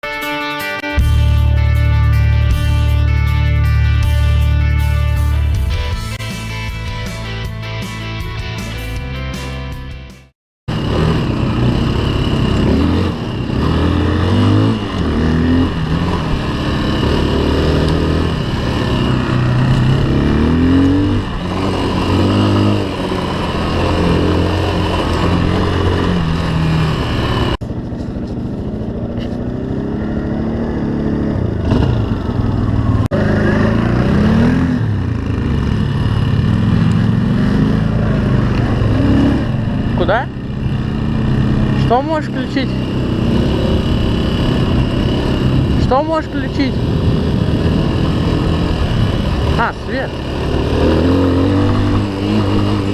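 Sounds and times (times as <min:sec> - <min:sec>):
off-road motorcycle engine revving: 0:10.7 - 0:52.9.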